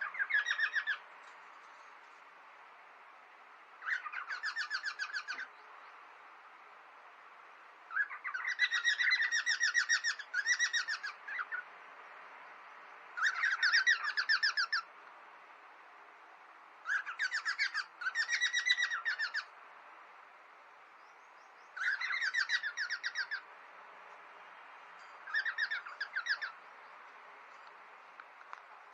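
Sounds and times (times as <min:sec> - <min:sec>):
cockatiels chattering: 0:25.3 - 0:26.5.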